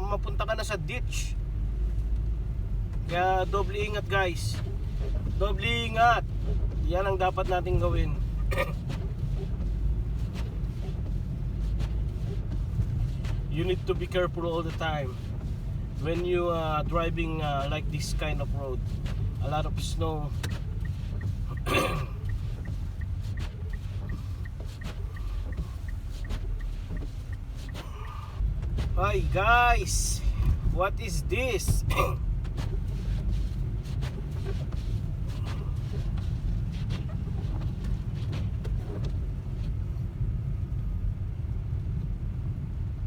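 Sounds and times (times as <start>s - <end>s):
car cabin road rumble: 0.0s - 43.0s
faint regular ticking: 20.4s - 28.4s.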